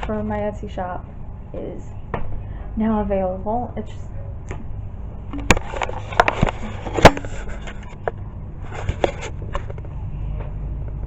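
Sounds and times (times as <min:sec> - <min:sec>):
sharp knocks and clicks: 0:05.3 - 0:08.2.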